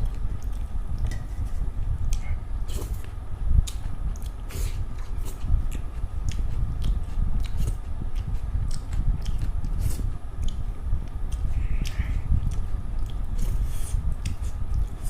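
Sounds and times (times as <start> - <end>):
close chewing and eating: 0.0 - 15.0
wet mouth clicks and smacks: 10.4 - 13.3.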